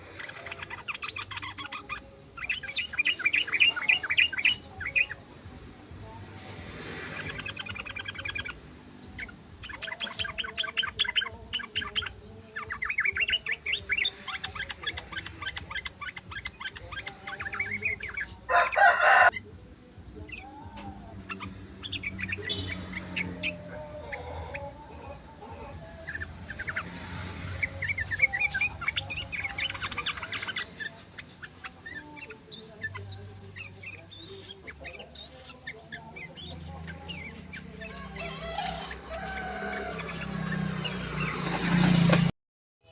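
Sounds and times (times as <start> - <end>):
low fowl sounds: 18.2 - 19.4, 37.9 - 40.5
rooster crowing: 18.5 - 19.3, 37.9 - 40.6.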